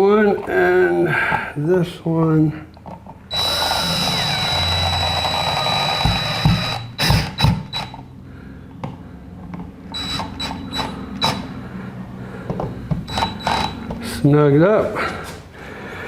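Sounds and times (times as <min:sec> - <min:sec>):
power drill whining: 0:03.3 - 0:08.0, 0:09.9 - 0:11.6, 0:13.0 - 0:14.0.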